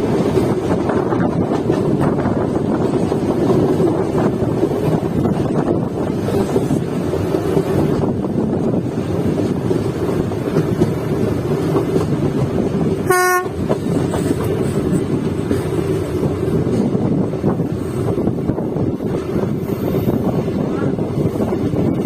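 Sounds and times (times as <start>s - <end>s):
passenger train rumbling: 0.0s - 22.0s
train horn toot: 13.0s - 13.6s.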